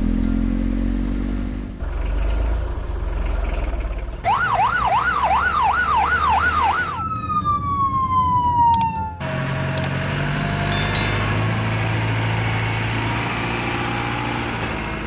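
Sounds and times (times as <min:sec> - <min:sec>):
police siren yelping: 0:04.2 - 0:09.3.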